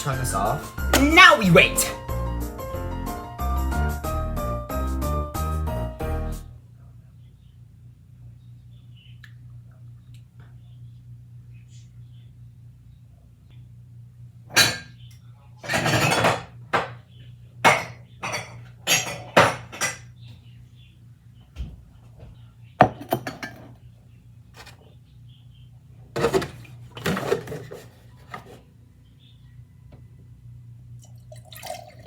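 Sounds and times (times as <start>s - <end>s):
kitchen dishes and pans clattering: 14.5s - 15.0s, 15.6s - 17.0s, 17.7s - 20.1s, 22.8s - 23.8s, 26.2s - 28.6s.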